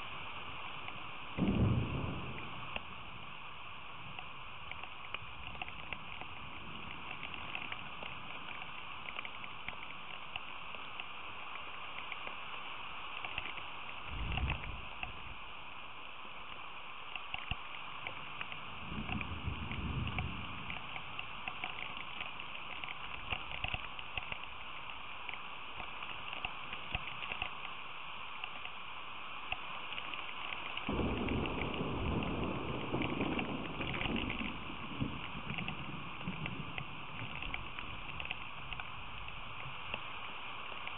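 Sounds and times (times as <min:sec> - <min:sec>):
steady rain falling: 0:00.0 - 0:40.9
thunder rumbling: 0:01.4 - 0:09.1, 0:14.1 - 0:15.4, 0:18.0 - 0:23.7, 0:30.8 - 0:40.0.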